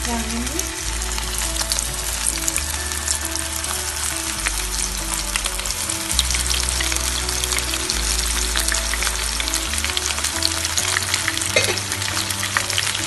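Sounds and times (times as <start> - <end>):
background music with bass: 0.0 - 13.0
meat sizzling in hot oil: 0.0 - 13.0.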